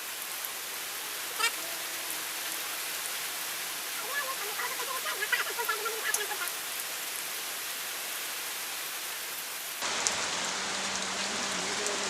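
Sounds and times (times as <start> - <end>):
heavy rain hiss: 0.0 - 12.0
faint voice: 1.3 - 2.6, 3.9 - 6.6.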